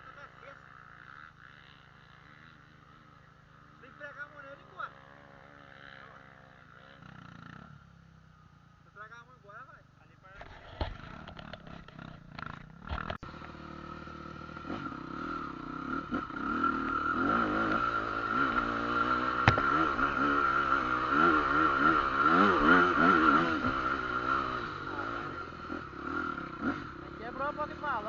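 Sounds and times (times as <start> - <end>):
vehicle engine running: 9.7 - 28.0.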